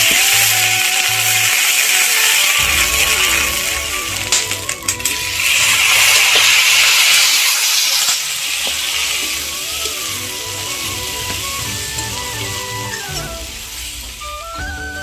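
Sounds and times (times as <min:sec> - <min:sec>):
garlic sizzling in hot oil: 0:00.0 - 0:14.2
background music with beat: 0:02.6 - 0:06.3, 0:09.2 - 0:15.0.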